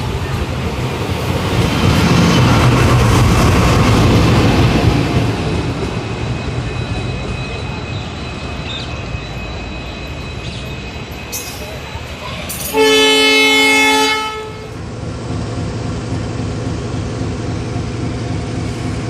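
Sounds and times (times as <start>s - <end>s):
train rumbling on tracks: 0.0s - 19.0s.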